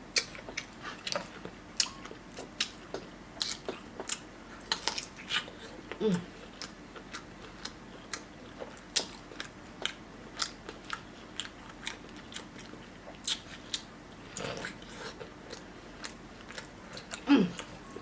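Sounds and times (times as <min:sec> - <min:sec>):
chewing with wet mouth clicks: 0:00.1 - 0:06.0, 0:06.6 - 0:18.0
person humming: 0:06.0 - 0:06.3, 0:17.3 - 0:17.8.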